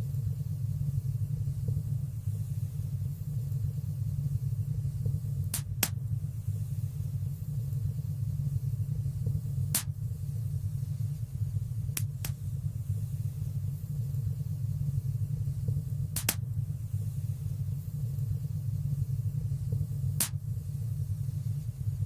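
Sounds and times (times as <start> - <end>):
fire rumbling in fireplace: 0.0 - 22.0
sharp fire crackles: 16.2 - 16.4.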